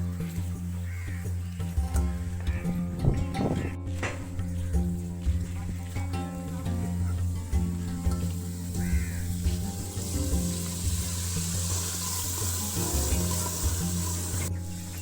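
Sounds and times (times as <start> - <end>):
background music: 0.0 - 15.0
tap water running into sink: 8.3 - 14.5.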